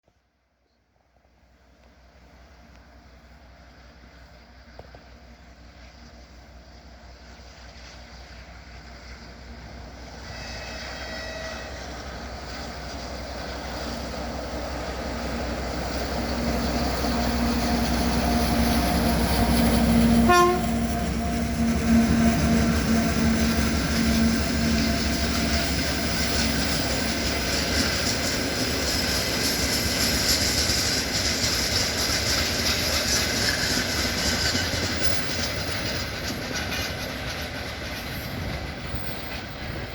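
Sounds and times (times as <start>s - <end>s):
diesel locomotive engine: 0.6s - 39.9s.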